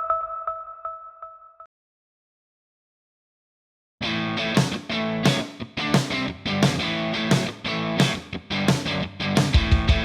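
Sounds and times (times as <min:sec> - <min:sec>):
pulsing electronic chime tone: 0:00.0 - 0:01.7.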